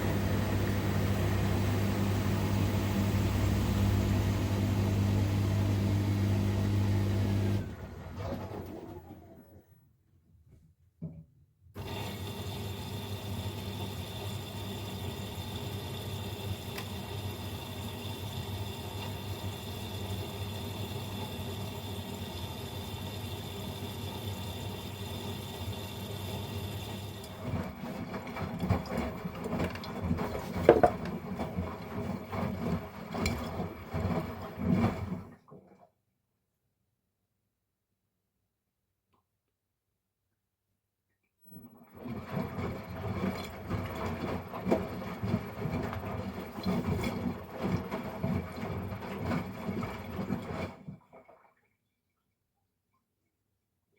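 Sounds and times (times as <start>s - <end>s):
knocks and sloshing of wet load: 27.4s - 35.8s, 42.6s - 51.8s
washing machine drum turning: 29.7s - 31.3s.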